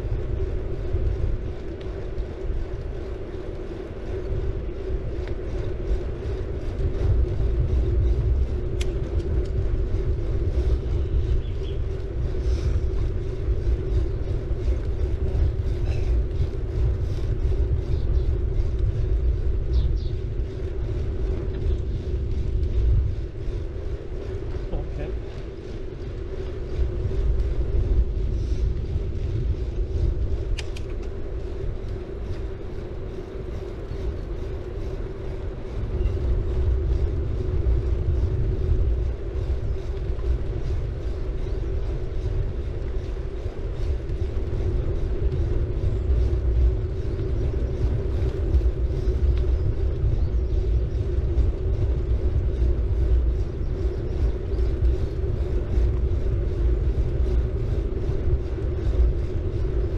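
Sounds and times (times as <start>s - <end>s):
bike tyres rumbling on road: 0.0s - 59.9s
mid-pitched hum: 0.0s - 59.9s
wind on microphone: 0.0s - 59.9s.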